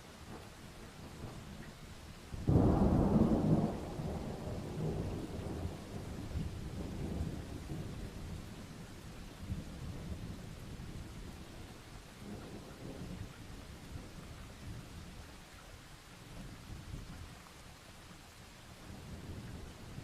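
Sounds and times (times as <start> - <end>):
steady rain: 0.0 - 20.0
distant thunder rumbling: 0.3 - 11.4.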